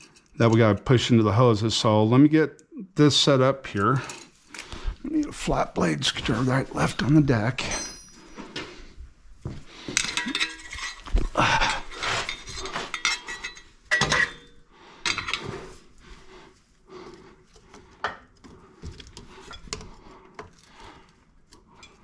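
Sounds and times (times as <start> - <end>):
metal tools clinking: 6.2 - 8.8, 10.0 - 15.6.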